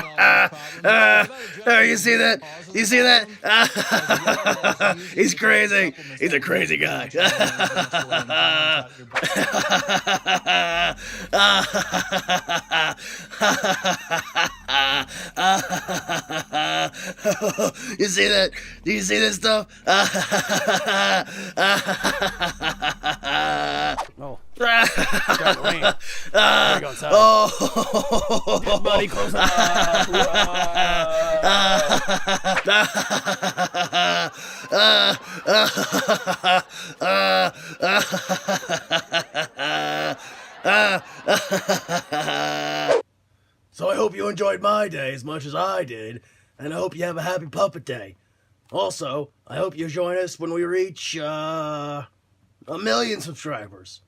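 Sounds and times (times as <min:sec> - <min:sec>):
person laughing and snickering: 0:00.0 - 0:01.7, 0:07.2 - 0:18.8, 0:19.9 - 0:43.0.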